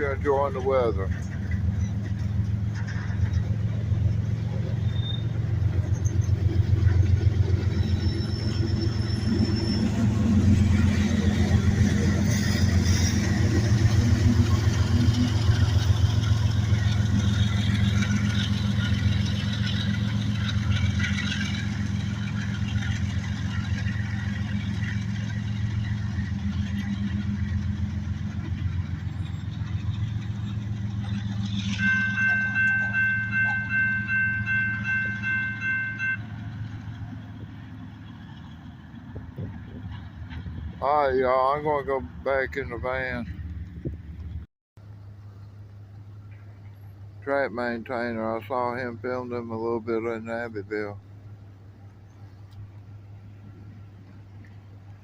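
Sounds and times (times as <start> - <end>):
diesel locomotive engine rumbling: 0.0 - 55.0
locomotive bell ringing: 28.6 - 36.9.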